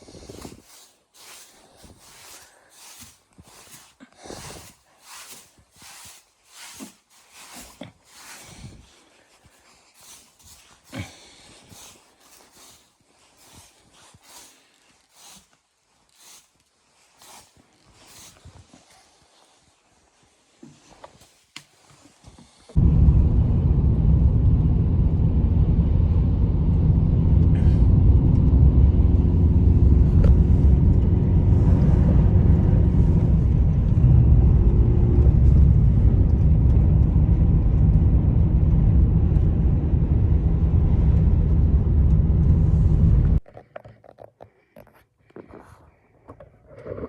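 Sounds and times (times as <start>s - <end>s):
engine rumbling: 22.8s - 43.4s.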